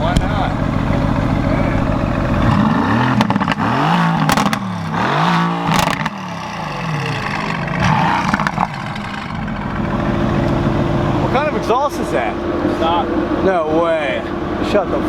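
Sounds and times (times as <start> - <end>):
exhaust pops and cracks: 0.0 - 10.7
car engine revving: 0.0 - 15.0.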